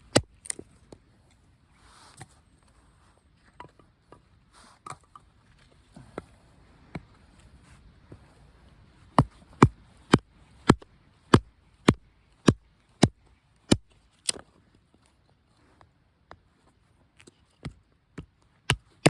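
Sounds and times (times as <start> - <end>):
wood being chopped: 0.0 - 0.6, 9.2 - 14.4, 18.7 - 19.0.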